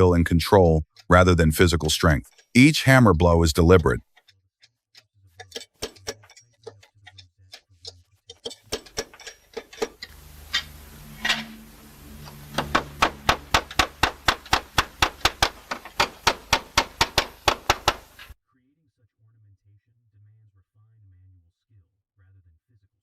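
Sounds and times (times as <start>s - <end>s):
hammer tapping slate: 0.9s - 10.8s, 12.2s - 18.4s
low steady hum: 8.8s - 18.3s.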